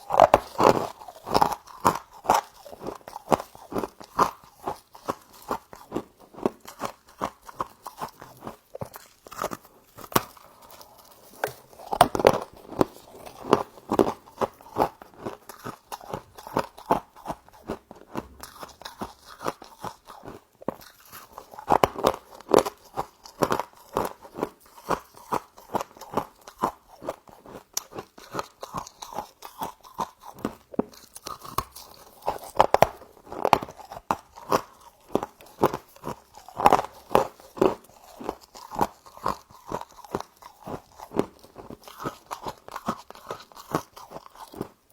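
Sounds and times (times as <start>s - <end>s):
crunchy chewing: 0.0s - 44.9s.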